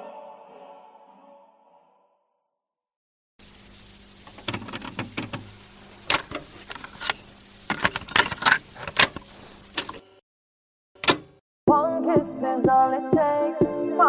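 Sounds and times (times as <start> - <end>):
faint hiss: 3.4 - 10.1.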